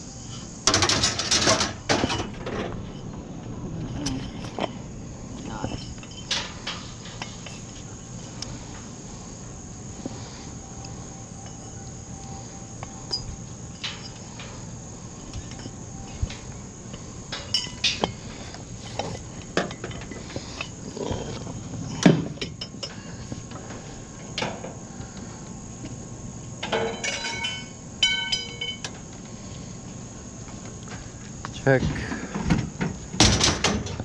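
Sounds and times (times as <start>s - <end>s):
crickets chirring: 0.0s - 34.0s
scrap metal clinking: 5.4s - 8.4s, 13.0s - 14.6s, 17.3s - 23.1s, 26.6s - 29.0s.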